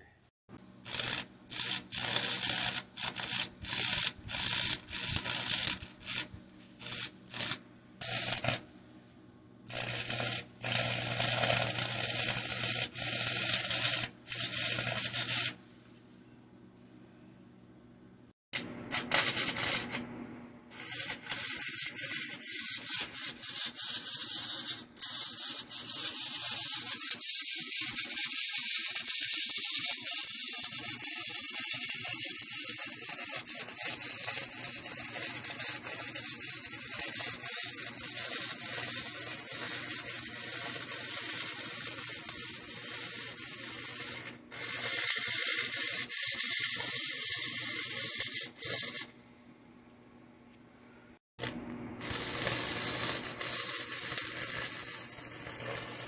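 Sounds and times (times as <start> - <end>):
welding arc crackling and hissing: 0.9 - 8.6, 9.7 - 15.6, 18.9 - 20.0, 20.7 - 49.1, 51.4 - 56.0.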